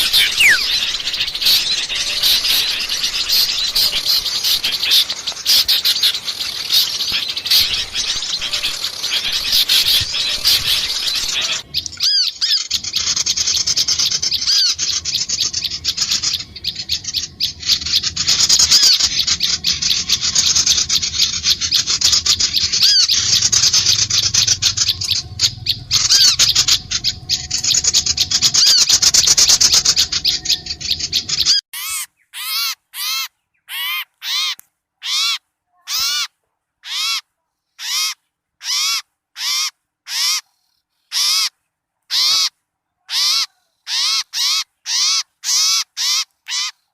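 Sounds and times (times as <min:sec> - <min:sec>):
chorus of birds chirping: 0:00.0 - 0:37.2
harsh bird call: 0:00.0 - 0:37.2.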